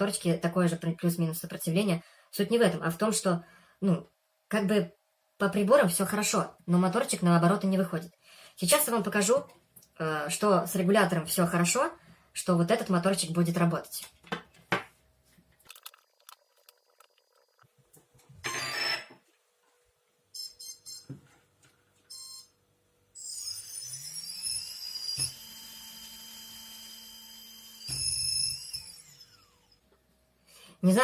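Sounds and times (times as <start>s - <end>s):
electric motor high-pitched whine: 18.4s - 19.1s, 23.2s - 29.8s.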